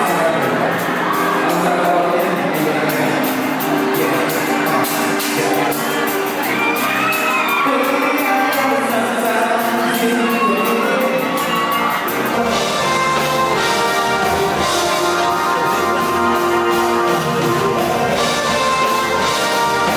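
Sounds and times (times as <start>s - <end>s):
crowd shouting and whooping: 0.0s - 19.9s
live pop band with singer: 0.0s - 19.9s.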